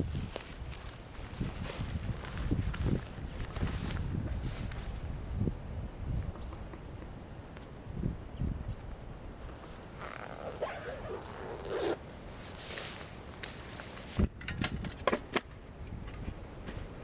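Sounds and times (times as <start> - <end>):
gear rustling and scraping: 9.5 - 16.9.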